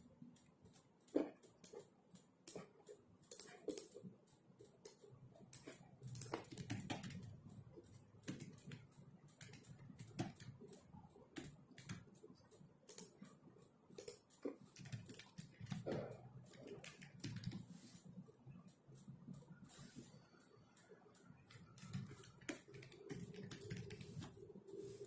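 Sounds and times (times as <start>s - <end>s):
computer keyboard typing: 0.0s - 25.0s.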